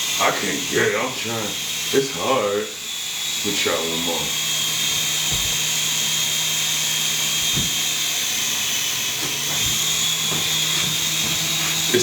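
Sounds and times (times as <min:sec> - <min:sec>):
rc helicopter motor whine: 0:00.0 - 0:12.0
low thumps: 0:05.0 - 0:05.9, 0:07.3 - 0:08.0.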